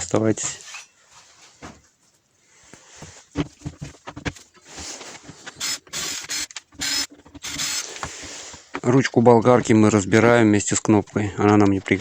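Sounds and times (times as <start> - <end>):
scraping and rattling: 3.0 - 12.0
tool parts clicking and knocking: 3.4 - 8.1.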